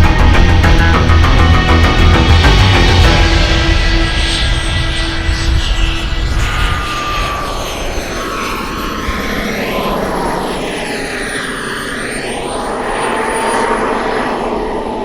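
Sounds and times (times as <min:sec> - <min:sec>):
model jet engine whine: 0:00.0 - 0:15.0.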